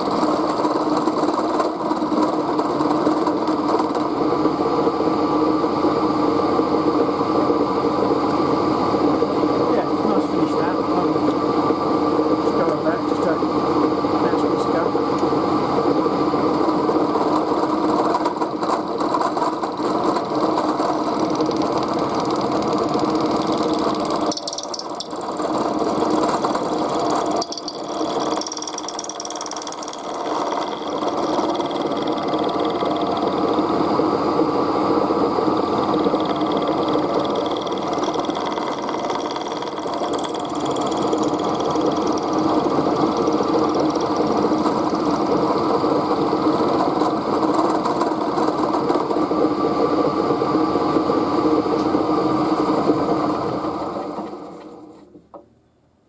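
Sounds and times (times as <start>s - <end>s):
machine tool cutting steel bar: 0.0s - 4.2s, 16.5s - 34.0s, 35.2s - 49.3s.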